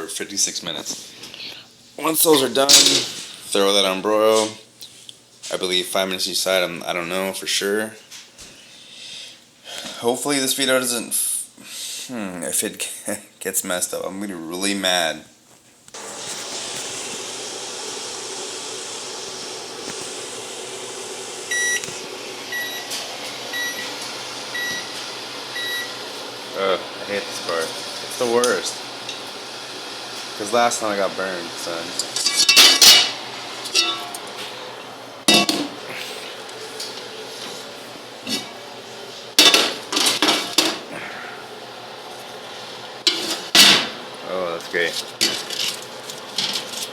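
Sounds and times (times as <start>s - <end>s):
fan-like hum: 0.0s - 46.9s
metal cookware clanking: 2.6s - 3.4s, 32.0s - 35.8s, 38.2s - 38.6s, 39.4s - 40.9s, 43.0s - 44.0s, 45.1s - 46.9s
oven timer beeping: 21.5s - 26.1s.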